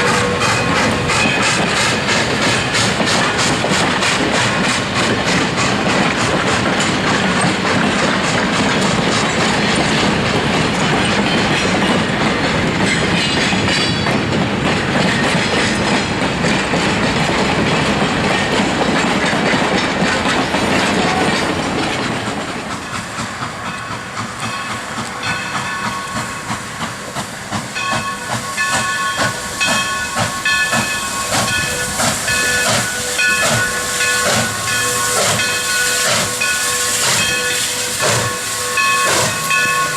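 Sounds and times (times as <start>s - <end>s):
steam locomotive rushing steam: 0.0s - 39.9s
ringing bell tone: 38.7s - 39.9s.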